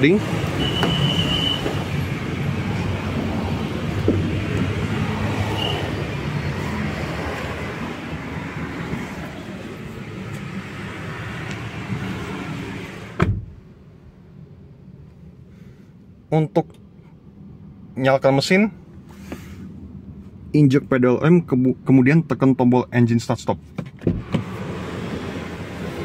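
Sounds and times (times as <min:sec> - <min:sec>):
car door shutting: 0:00.7 - 0:01.9, 0:04.0 - 0:04.7, 0:13.0 - 0:13.6, 0:23.8 - 0:24.8.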